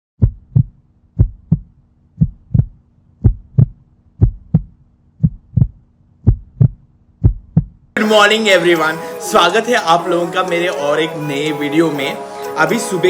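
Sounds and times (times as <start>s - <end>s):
heartbeat thumps: 0.2s - 7.9s.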